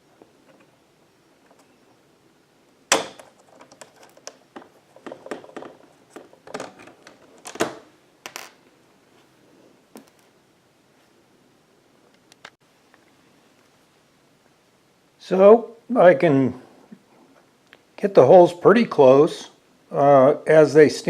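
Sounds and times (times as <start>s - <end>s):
tools clicking and knocking: 2.9s - 8.6s.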